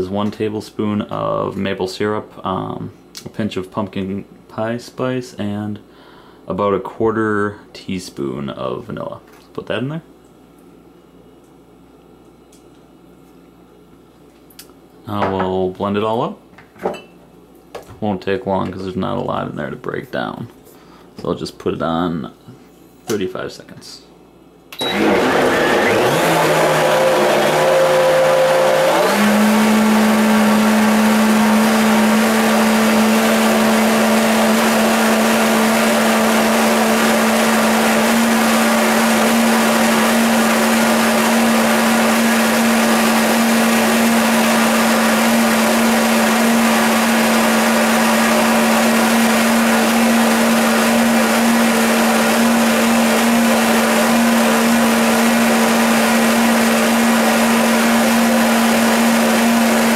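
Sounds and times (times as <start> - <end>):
blender motor whine: 24.8 - 59.9.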